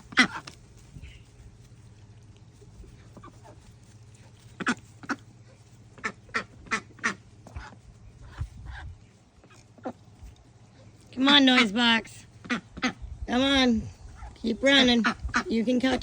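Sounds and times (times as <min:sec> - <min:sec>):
ducks quacking: 0:00.0 - 0:01.3, 0:02.8 - 0:10.1, 0:11.2 - 0:13.1, 0:14.1 - 0:16.0.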